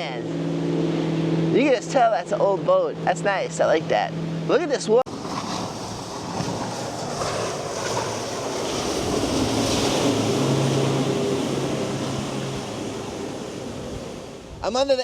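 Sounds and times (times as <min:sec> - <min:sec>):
choppy water wash: 0:00.0 - 0:15.0
motorboat engine humming: 0:00.0 - 0:15.0
wind on microphone: 0:05.1 - 0:15.0.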